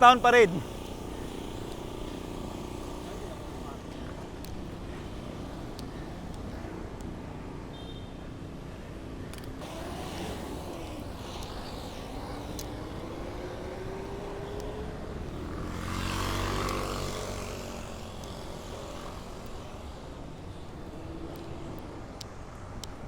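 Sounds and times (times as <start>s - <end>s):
street traffic: 0.0s - 23.0s
wind: 0.0s - 23.0s
motor vehicle passing close: 9.6s - 22.2s.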